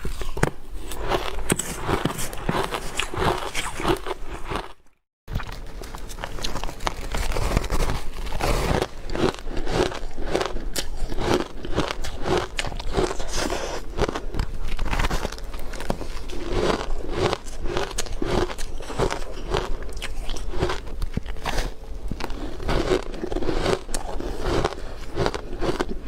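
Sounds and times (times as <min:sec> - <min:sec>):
ice being chewed: 0:00.0 - 0:26.0.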